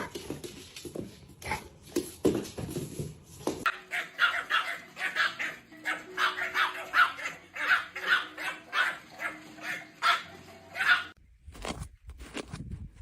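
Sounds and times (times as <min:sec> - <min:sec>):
dog yapping: 0:03.7 - 0:11.2.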